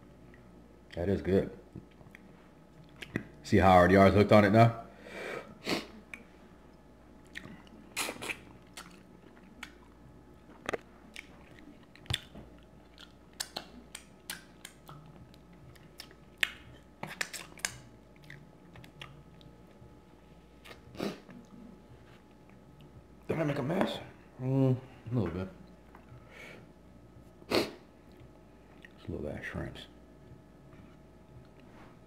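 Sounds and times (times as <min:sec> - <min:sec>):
person chewing crab and shrimp: 0:07.2 - 0:19.8.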